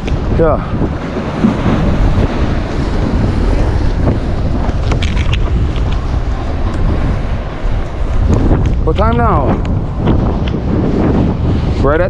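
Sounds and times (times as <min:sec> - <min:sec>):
ocean surf washing on rocks: 0:00.0 - 0:12.0
wind buffeting microphone: 0:00.0 - 0:12.0.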